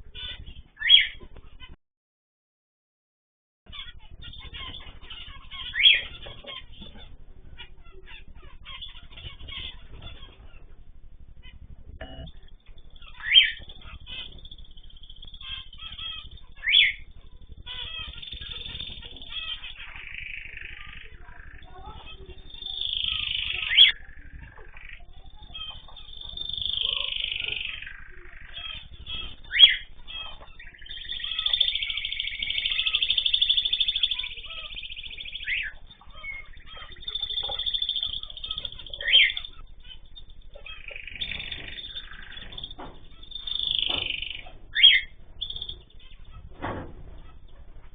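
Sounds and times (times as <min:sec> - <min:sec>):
pet birds chirping: 0:00.0 - 0:01.8, 0:03.7 - 0:47.9
songbird trill: 0:00.0 - 0:01.8, 0:03.7 - 0:47.9
loud sharp bird calls: 0:00.1 - 0:01.8, 0:03.7 - 0:10.8, 0:11.4 - 0:47.9.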